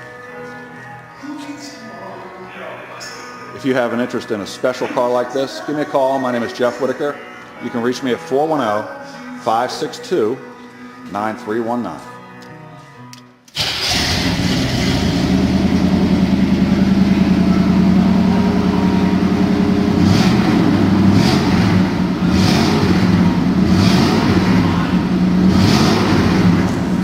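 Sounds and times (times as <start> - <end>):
car engine rumbling: 13.8 - 27.0.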